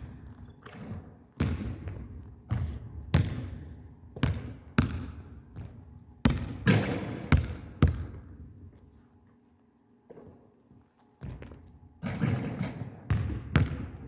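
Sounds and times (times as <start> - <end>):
basketball bouncing on gym floor: 0.0 - 8.4, 11.2 - 14.0.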